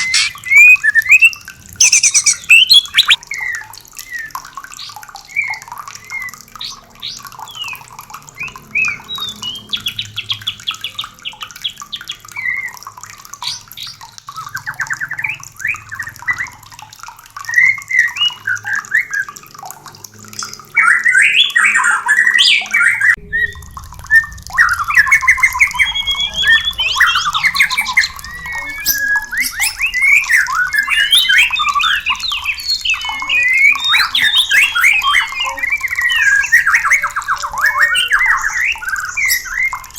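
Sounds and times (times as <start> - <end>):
harsh bird chattering: 0.0 - 3.2, 25.6 - 38.3
birds singing whistled phrases: 0.0 - 4.3, 24.6 - 39.9
low steady rumble: 23.2 - 28.6.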